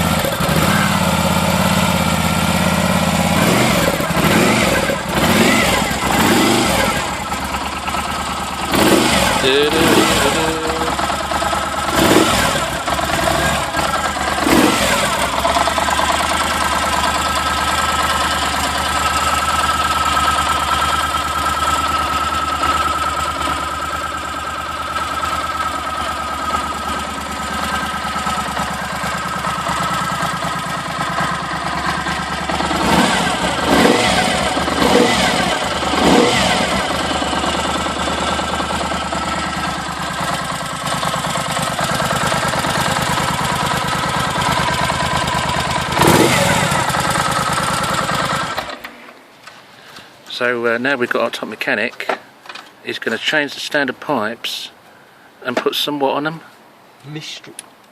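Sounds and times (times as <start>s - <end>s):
motorcycle engine idling: 0.0s - 48.8s.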